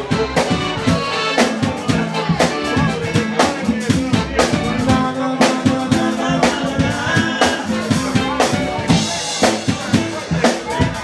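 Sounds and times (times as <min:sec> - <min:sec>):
bass: 0:00.0 - 0:11.0
drum kit beat: 0:00.0 - 0:11.0
guitar: 0:00.0 - 0:11.0
person singing: 0:00.0 - 0:11.0.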